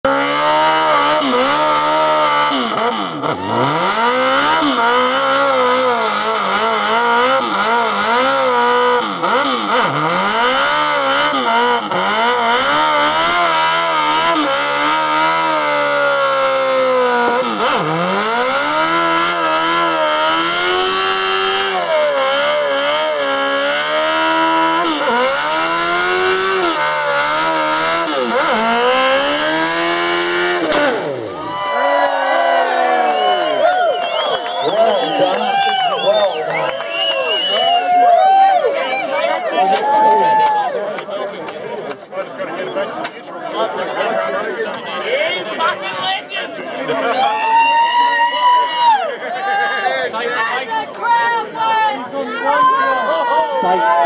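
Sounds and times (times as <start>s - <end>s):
motorcycle engine revving: 0.0s - 31.6s.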